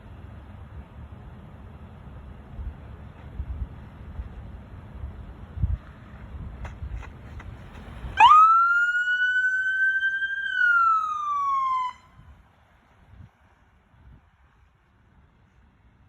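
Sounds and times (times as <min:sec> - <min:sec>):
police siren wail: 0:08.2 - 0:12.1.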